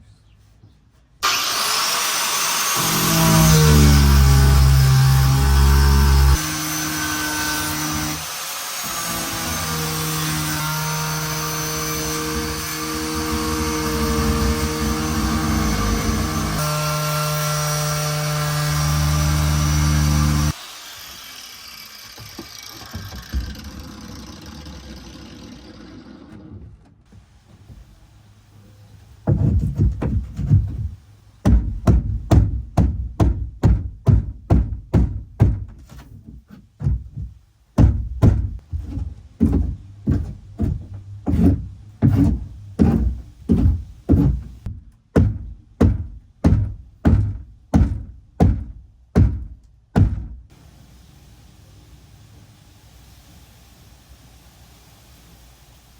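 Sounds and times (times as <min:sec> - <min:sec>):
angle grinder running: 0:01.2 - 0:26.3
heavy thunks of pounding: 0:29.2 - 0:35.9, 0:36.8 - 0:50.4.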